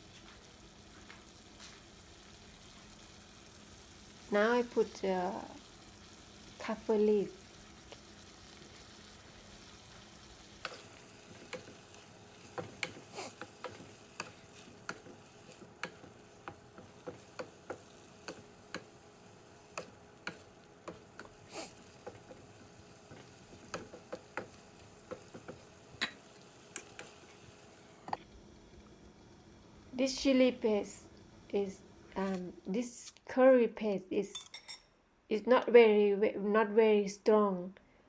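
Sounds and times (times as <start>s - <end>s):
food sizzling in a pan: 0.0s - 33.1s
spatula scraping a pan: 9.6s - 18.9s.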